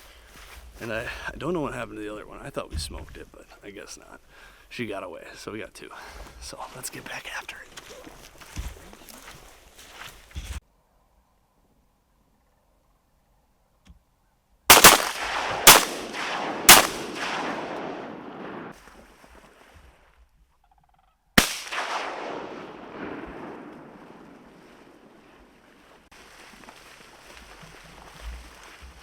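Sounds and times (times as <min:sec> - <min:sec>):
shotgun blasts echoing: 0:14.7 - 0:18.8, 0:21.4 - 0:25.8.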